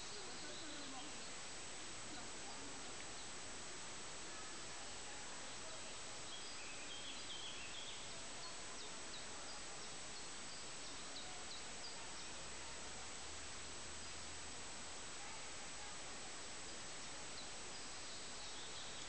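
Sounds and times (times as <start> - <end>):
faint bird chirps: 0.0 - 3.4, 4.2 - 12.7, 15.2 - 19.0
steady background hiss: 0.0 - 19.0.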